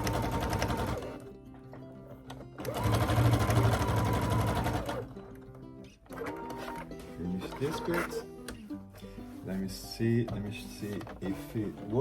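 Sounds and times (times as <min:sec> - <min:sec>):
sewing machine stitching: 0:00.0 - 0:01.2, 0:02.6 - 0:05.1.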